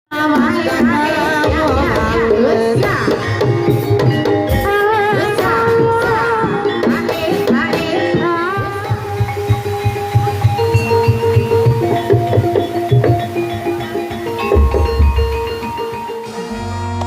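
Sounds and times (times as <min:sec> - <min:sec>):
metallophone notes: 0:00.3 - 0:17.0
hand drumming: 0:00.4 - 0:16.3
high wavering melody: 0:08.0 - 0:17.0.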